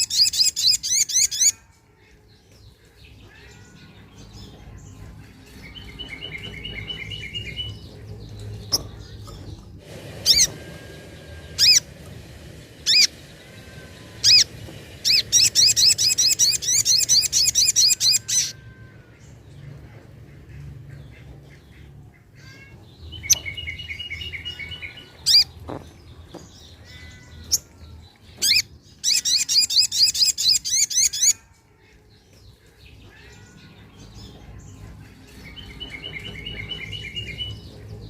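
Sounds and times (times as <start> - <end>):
faint bird trill: 12.8 - 20.0, 22.3 - 38.0.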